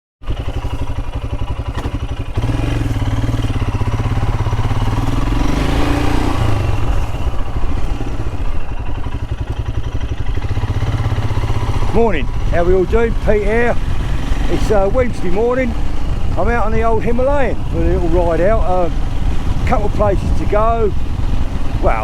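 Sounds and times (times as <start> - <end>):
motorcycle engine running: 0.2 - 22.0.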